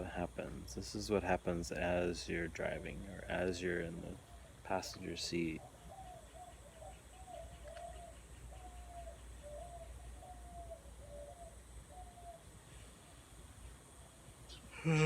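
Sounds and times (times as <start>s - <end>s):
faint low hum: 0.0s - 15.0s
bird cooing: 5.5s - 12.5s, 14.5s - 15.0s.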